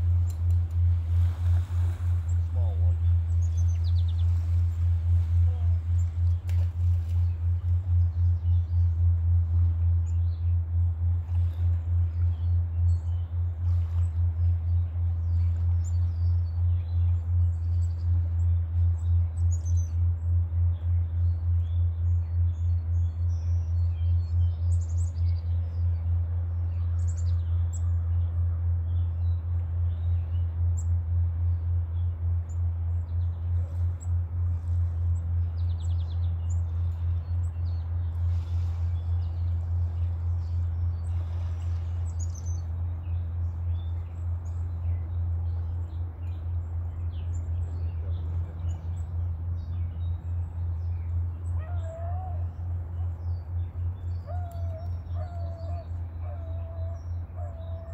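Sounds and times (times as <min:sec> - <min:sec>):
low pulsing hum: 0:00.0 - 0:57.9
small birds chirping: 0:01.4 - 0:10.7, 0:31.5 - 0:57.9
short wavering bird call: 0:51.4 - 0:53.2, 0:53.8 - 0:57.9.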